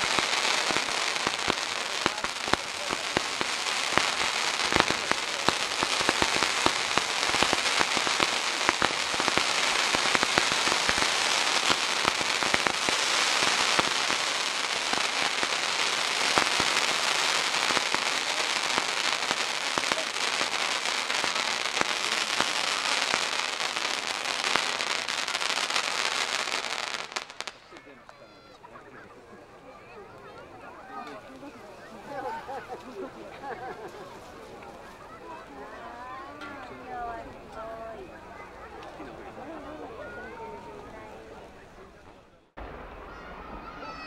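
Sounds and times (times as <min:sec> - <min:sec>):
firework sparks hissing: 0:00.0 - 0:27.8
firework crackles and pops: 0:00.0 - 0:28.3, 0:42.5 - 0:44.0.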